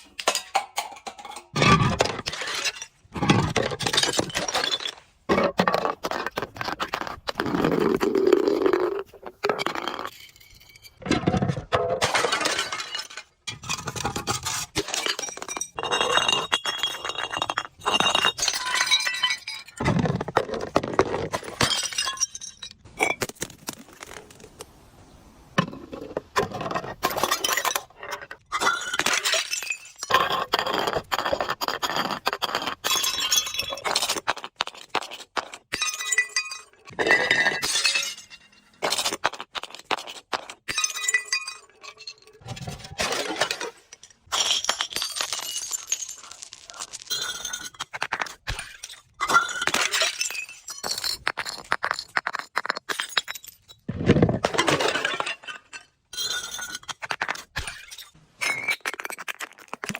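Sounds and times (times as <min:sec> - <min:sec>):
glass bottles breaking: 0:00.1 - 0:05.6, 0:09.4 - 0:23.6, 0:27.0 - 0:30.8, 0:32.8 - 0:34.2, 0:35.7 - 0:39.2, 0:40.7 - 0:59.9.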